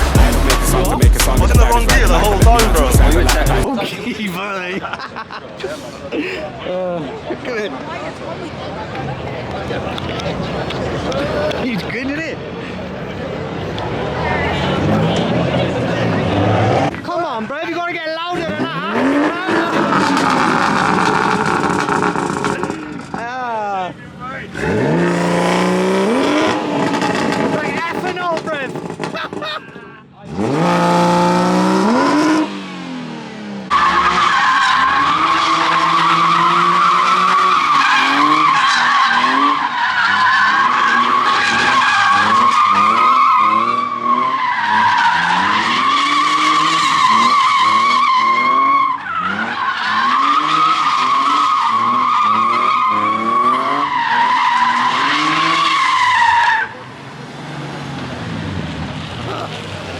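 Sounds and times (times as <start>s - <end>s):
car engine revving: 0.0s - 3.7s, 8.0s - 17.1s, 18.3s - 59.9s
tyre squeal: 33.7s - 56.8s.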